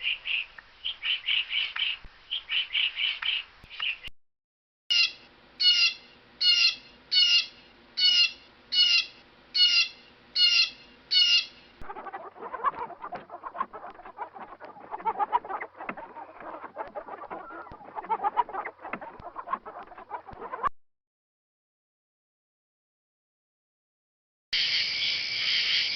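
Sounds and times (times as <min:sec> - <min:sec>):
bird high calls: 0:04.9 - 0:13.2
chickens clucking: 0:11.8 - 0:20.6.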